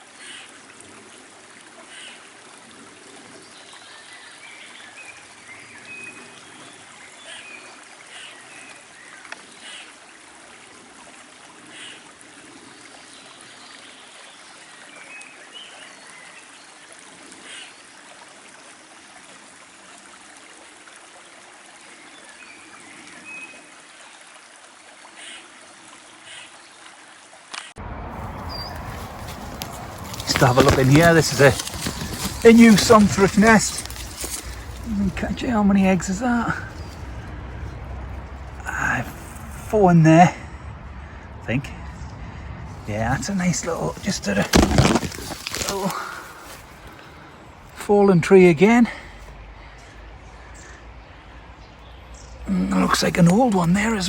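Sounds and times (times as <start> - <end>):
stream water trickling: 0.0 - 54.0
faint bird calls: 27.6 - 37.9.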